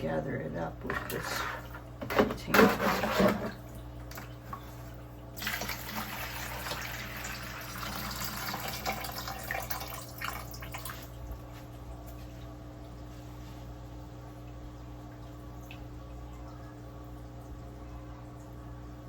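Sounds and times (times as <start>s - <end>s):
steady low hum: 0.0s - 5.8s
water sloshing and splashing: 0.8s - 16.2s.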